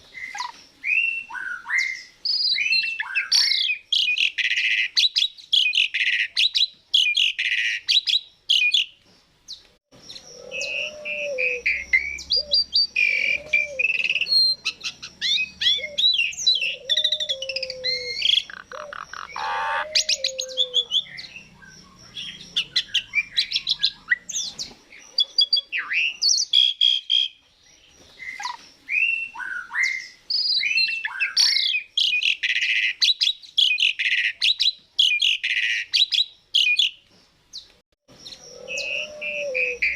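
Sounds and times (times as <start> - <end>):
starlings harsh chatter: 10.0 - 27.4
starling whistles and chirps: 10.0 - 37.0, 38.2 - 39.9.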